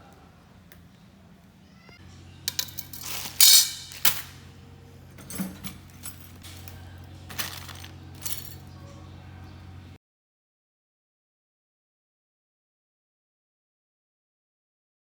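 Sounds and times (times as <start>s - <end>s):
steady low hum: 0.0s - 10.0s
metal tools clinking: 2.5s - 4.5s, 5.1s - 8.8s.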